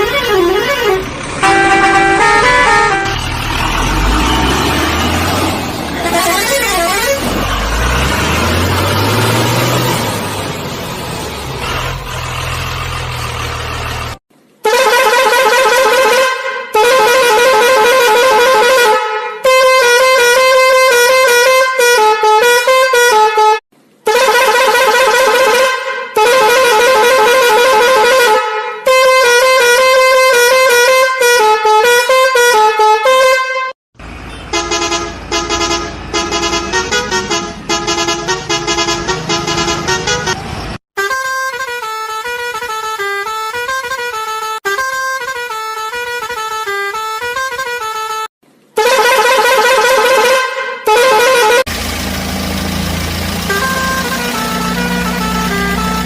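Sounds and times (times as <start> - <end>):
musical vehicle horn: 0.0 - 10.3, 14.6 - 51.7, 53.4 - 56.0
engine running: 0.0 - 14.2, 51.6 - 56.0.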